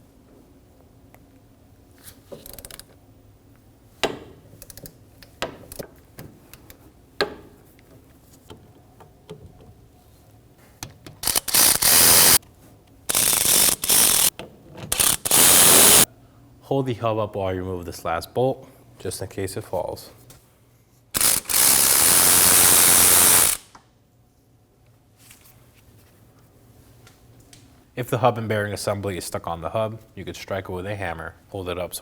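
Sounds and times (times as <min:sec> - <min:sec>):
rapid ratchet clicking: 0:11.2 - 0:12.4, 0:13.1 - 0:14.3, 0:14.9 - 0:16.1, 0:21.2 - 0:23.7.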